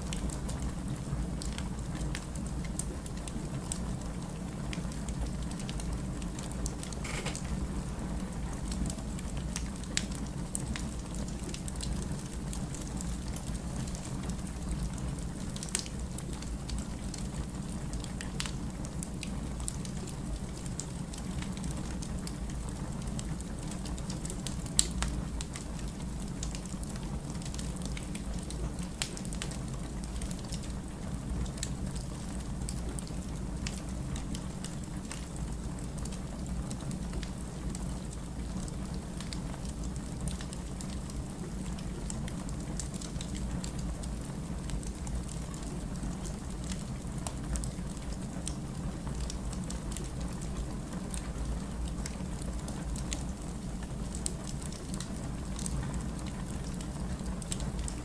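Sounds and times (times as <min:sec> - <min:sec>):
low fire rumble: 0:07.8 - 0:58.0
firewood crackling and popping: 0:15.5 - 0:22.6, 0:23.2 - 0:58.0.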